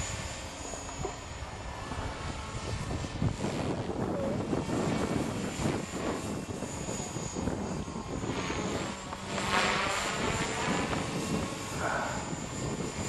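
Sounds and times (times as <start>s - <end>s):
rc helicopter motor whine: 0.0s - 13.0s
rotor whoosh: 0.0s - 13.0s
wind buffeting microphone: 0.0s - 13.0s.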